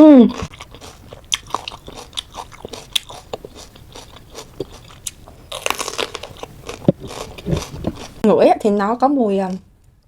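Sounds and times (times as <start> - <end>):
chewing crisp fruit: 0.2 - 8.2.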